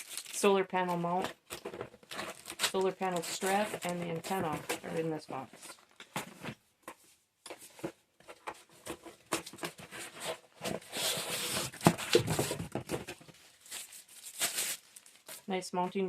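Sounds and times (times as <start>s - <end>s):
packaging crinkling and tearing: 0.0s - 0.6s, 1.4s - 4.4s, 9.4s - 15.5s.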